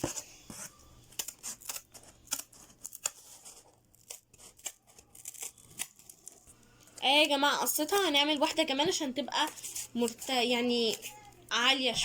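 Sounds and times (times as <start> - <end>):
scissors cutting cardboard: 0.0 - 6.5.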